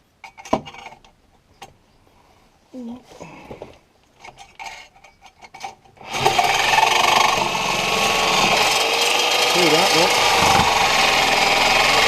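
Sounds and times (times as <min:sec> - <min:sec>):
tool handling clicks and knocks: 0:00.2 - 0:01.8, 0:03.6 - 0:06.0
reciprocating saw cutting: 0:06.0 - 0:12.0.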